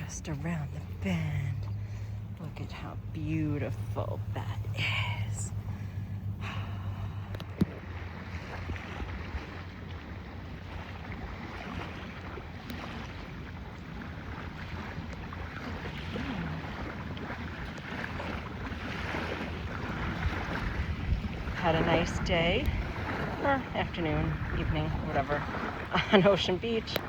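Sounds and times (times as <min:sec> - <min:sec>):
low steady hum: 0:00.0 - 0:27.0
water sounds: 0:00.0 - 0:27.0
wind noise: 0:19.1 - 0:27.0.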